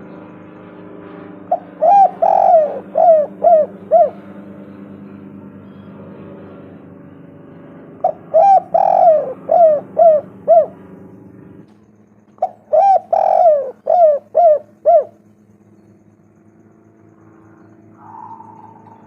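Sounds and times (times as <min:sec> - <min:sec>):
dove cooing: 0:01.4 - 0:04.6, 0:08.0 - 0:11.0, 0:12.3 - 0:15.3, 0:17.3 - 0:19.0.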